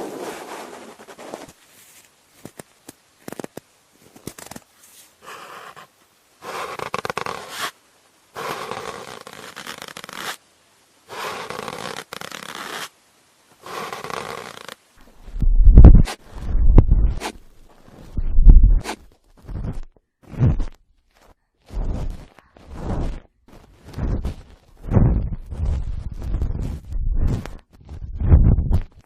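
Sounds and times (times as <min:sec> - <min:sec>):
light crackles: 0:00.2 - 0:29.0
cotton swab rubbing microphone: 0:04.3 - 0:07.8, 0:08.4 - 0:10.4, 0:11.1 - 0:12.9, 0:13.6 - 0:29.0.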